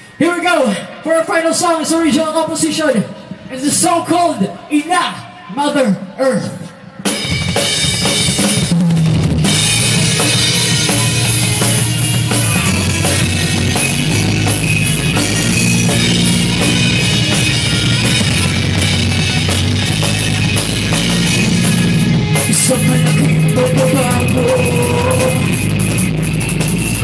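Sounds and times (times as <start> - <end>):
rock band playing: 6.8 - 27.0
drum kit beat: 7.1 - 27.0
low bass notes: 8.3 - 27.0.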